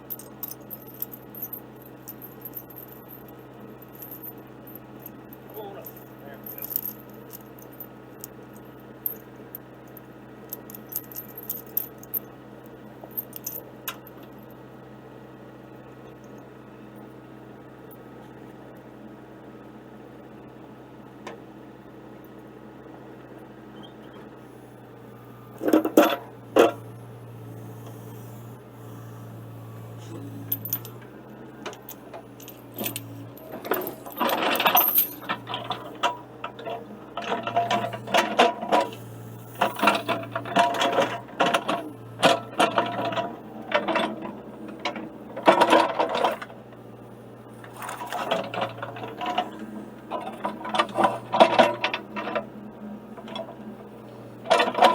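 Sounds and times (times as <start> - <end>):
steel chain clinking and rattling: 0.0 - 12.3, 13.0 - 14.4, 24.4 - 46.5, 47.6 - 52.4
excavator engine running: 0.0 - 54.9.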